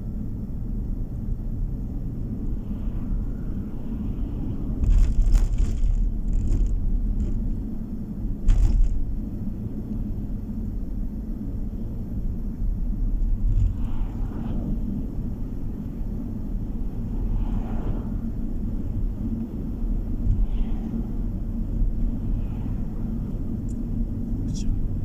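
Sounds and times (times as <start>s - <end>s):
car road and engine noise: 0.0s - 25.0s
car jolts: 4.8s - 9.2s.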